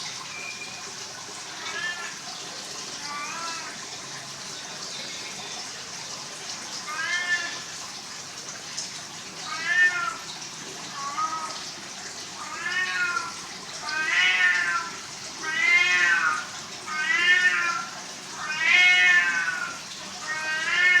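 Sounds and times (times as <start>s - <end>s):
cat meowing: 1.6s - 2.2s, 6.9s - 7.7s, 9.4s - 10.2s, 12.4s - 21.0s.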